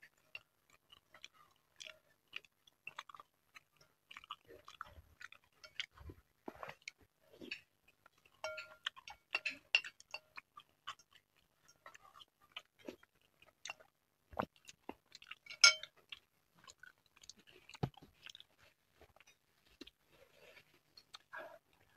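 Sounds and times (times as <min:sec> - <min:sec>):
mouth chewing: 0:00.1 - 0:21.9
cutlery clinking on glass bowl: 0:08.4 - 0:10.4, 0:15.4 - 0:15.9.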